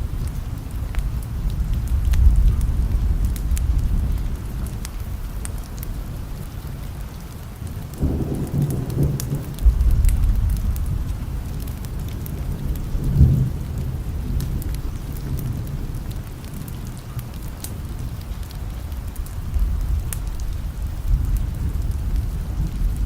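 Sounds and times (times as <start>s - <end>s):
steady rain: 0.0s - 23.0s
rolling thunder: 7.9s - 16.5s
small ticks: 14.3s - 23.0s.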